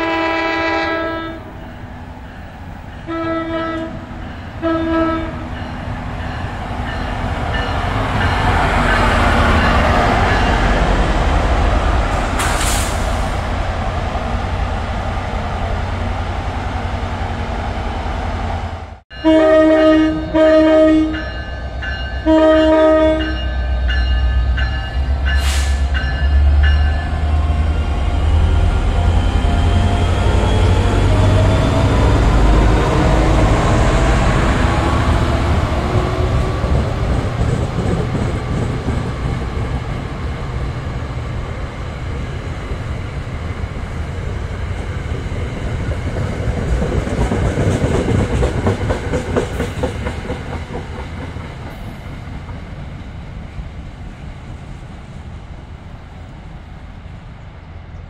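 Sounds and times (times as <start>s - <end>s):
diesel locomotive running: 0.0s - 58.0s
train wheels clickety-clack: 12.1s - 13.2s, 30.5s - 40.0s, 44.3s - 52.9s.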